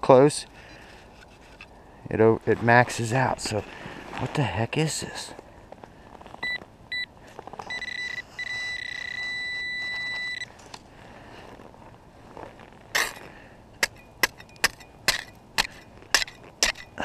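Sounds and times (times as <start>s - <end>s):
metal detector high-pitched tone: 7.7s - 10.5s
digging tool striking ice: 12.9s - 17.0s.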